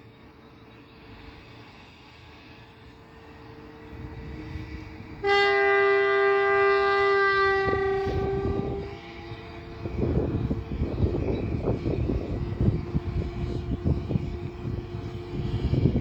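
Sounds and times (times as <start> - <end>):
locomotive horn blast: 5.2 - 16.0.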